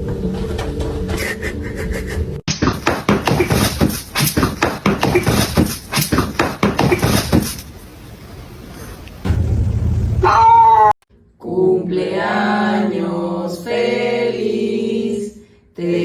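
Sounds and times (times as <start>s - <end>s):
music: 0.0s - 2.4s.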